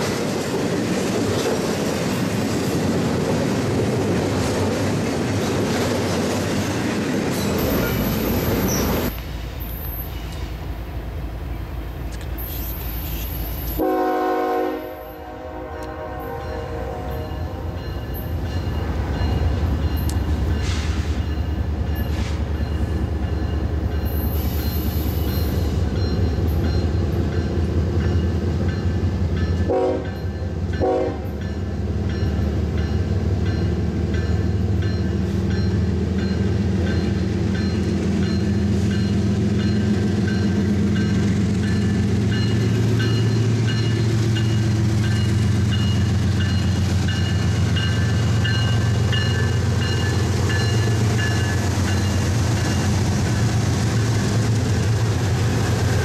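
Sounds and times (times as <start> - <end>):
locomotive horn blasts: 13.8 - 17.8, 29.7 - 30.2, 30.8 - 31.3.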